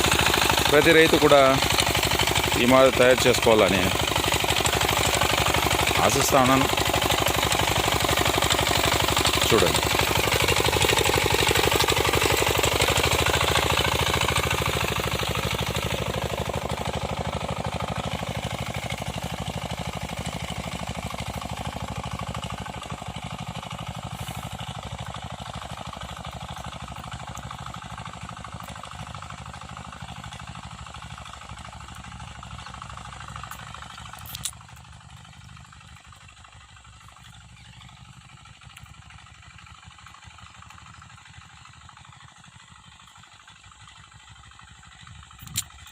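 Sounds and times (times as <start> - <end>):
tractor engine chugging: 0.0 - 45.9.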